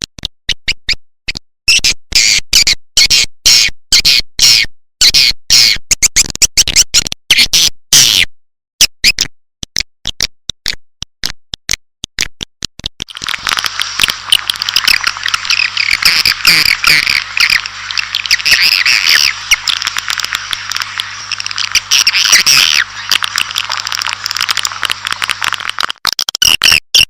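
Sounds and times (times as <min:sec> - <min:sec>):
chorus of twittering chirps: 0:13.1 - 0:25.8
low hum: 0:13.1 - 0:25.9
swiftlet chirps and clicks: 0:13.1 - 0:26.0.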